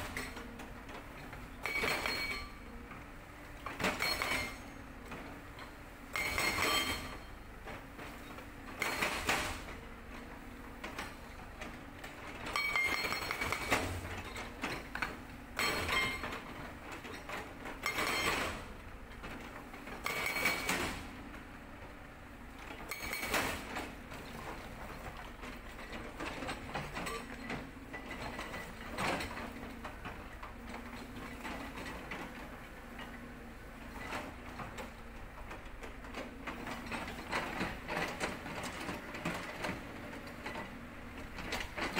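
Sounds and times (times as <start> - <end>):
excavator diesel engine running: 0.0 - 41.9
hydraulic breaker hammering rock: 1.5 - 2.8, 3.6 - 4.8, 5.4 - 7.4, 8.2 - 9.8, 12.1 - 18.7, 19.7 - 21.1, 22.7 - 30.3.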